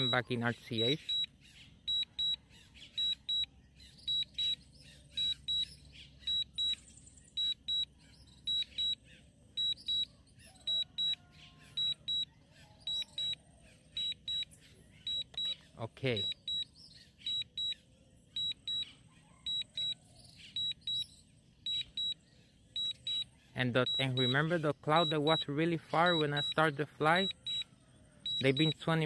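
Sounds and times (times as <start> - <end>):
remote controller alert beeps: 0.0 - 9.0, 9.6 - 17.8, 18.4 - 29.0.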